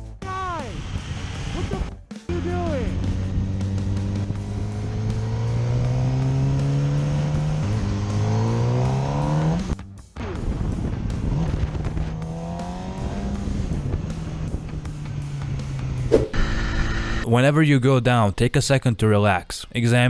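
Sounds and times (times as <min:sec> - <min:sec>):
motorcycle engine accelerating: 0:02.3 - 0:17.2.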